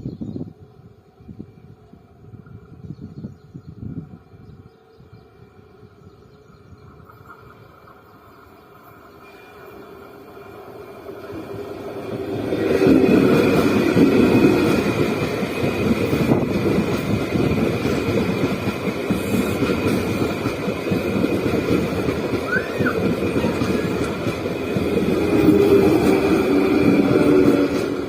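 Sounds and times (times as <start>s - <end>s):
train wheels clattering on rails: 10.9s - 28.0s.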